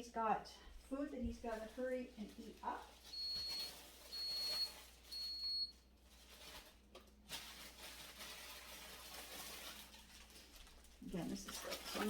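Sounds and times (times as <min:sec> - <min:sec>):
food packaging rustling: 0:01.2 - 0:12.0
refrigerator alarm beep: 0:03.1 - 0:05.9.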